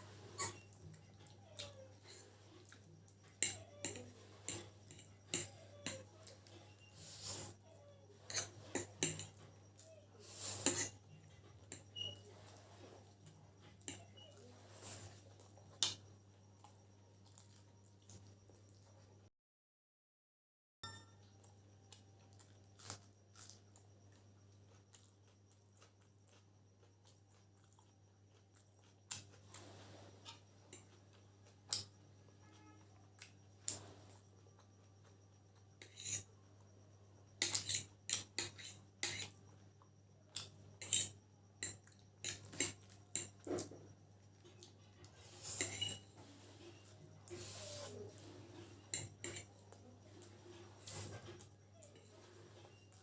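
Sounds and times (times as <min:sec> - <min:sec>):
cutlery scraping a plate: 0:03.3 - 0:07.6, 0:08.2 - 0:09.5, 0:10.2 - 0:13.1, 0:13.8 - 0:15.3, 0:35.8 - 0:36.3, 0:37.4 - 0:39.4, 0:40.8 - 0:43.8, 0:45.2 - 0:53.0.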